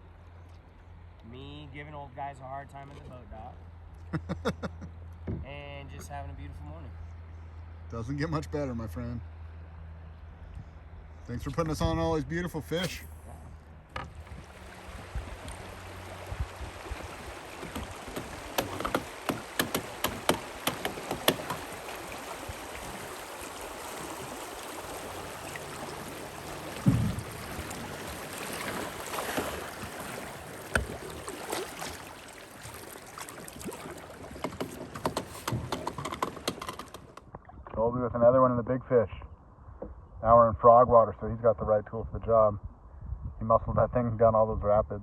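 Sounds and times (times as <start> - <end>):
river water running: 12.6 - 37.5
short clicks and knocks: 17.6 - 21.6, 34.4 - 37.8
low thump: 26.8 - 27.4.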